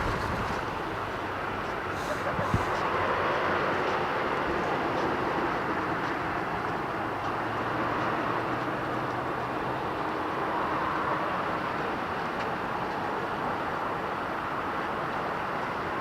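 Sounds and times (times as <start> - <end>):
jet airliner taking off: 0.0 - 3.2.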